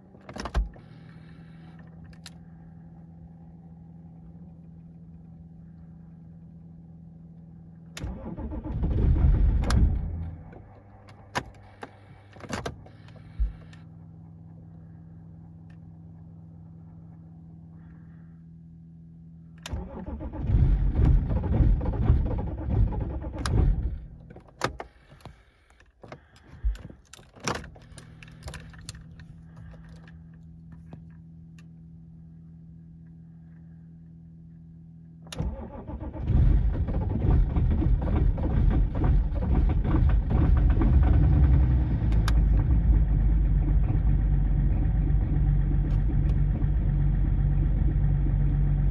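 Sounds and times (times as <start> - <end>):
steady low hum: 0.0 - 35.4
diesel engine starting and running: 0.0 - 48.9.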